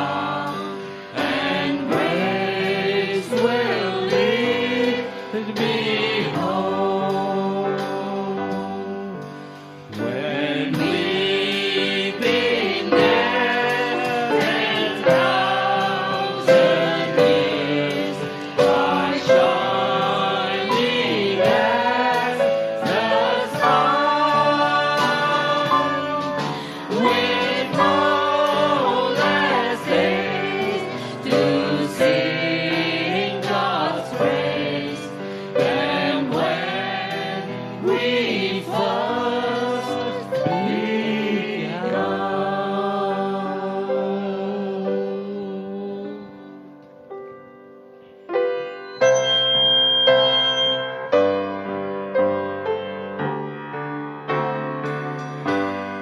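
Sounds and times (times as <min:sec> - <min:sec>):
drums: 0:00.0 - 0:42.2
congregation singing: 0:00.0 - 0:46.8, 0:48.3 - 0:52.6
piano: 0:00.0 - 0:56.0.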